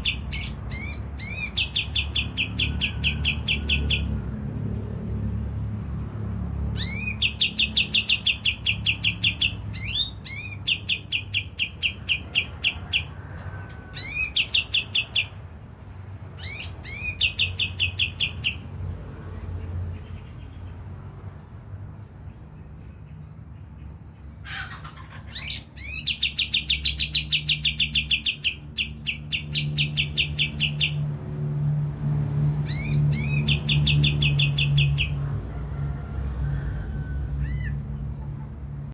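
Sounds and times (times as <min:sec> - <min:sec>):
songbird rattling calls: 0:00.0 - 0:04.1, 0:06.8 - 0:13.1, 0:24.5 - 0:31.0, 0:32.6 - 0:35.2.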